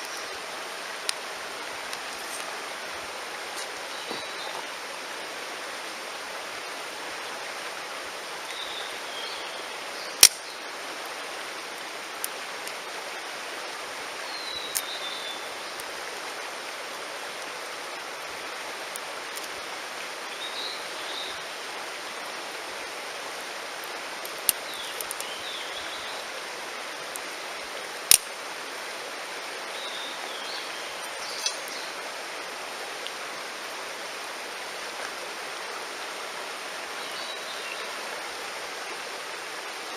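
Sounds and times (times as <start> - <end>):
campfire wood crackling: 0.0 - 4.6, 10.2 - 10.5, 12.1 - 12.8, 18.7 - 19.7, 23.3 - 25.9, 27.0 - 28.5, 30.9 - 32.0
stream rushing: 0.0 - 39.9.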